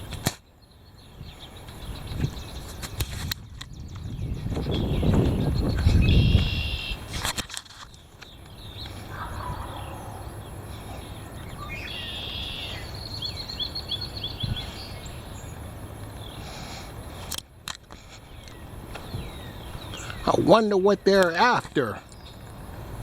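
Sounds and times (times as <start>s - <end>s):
small birds chirping: 0.0s - 7.2s, 7.8s - 17.3s, 17.9s - 23.0s
wind buffeting microphone: 0.9s - 11.9s, 12.6s - 16.4s, 18.2s - 20.6s.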